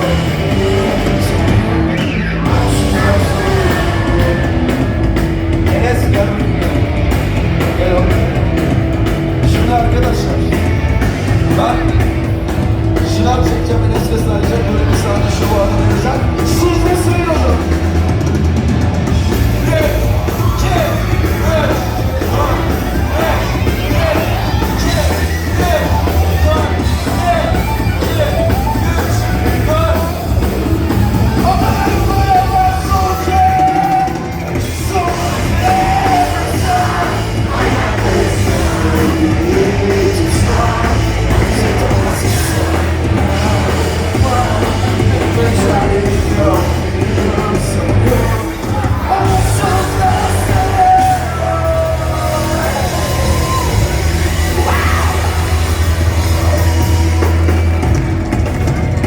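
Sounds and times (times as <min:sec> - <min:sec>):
person singing: 0:00.0 - 0:08.6, 0:31.0 - 0:57.5
live rock band playing: 0:00.0 - 0:59.0
person shouting vocals: 0:49.0 - 0:55.6.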